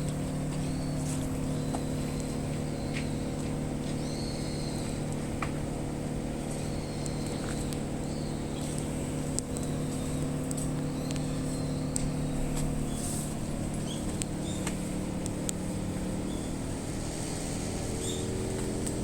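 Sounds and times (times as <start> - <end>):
air conditioner humming: 0.0 - 19.0
light ticks: 7.0 - 7.9, 8.6 - 12.8, 13.7 - 15.6.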